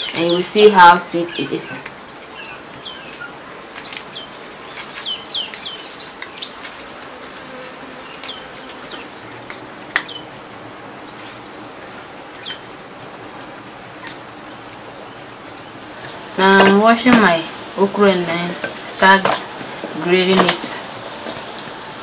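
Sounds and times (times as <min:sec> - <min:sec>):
small birds chirping: 0:00.0 - 0:06.8, 0:07.9 - 0:12.8, 0:13.9 - 0:16.3.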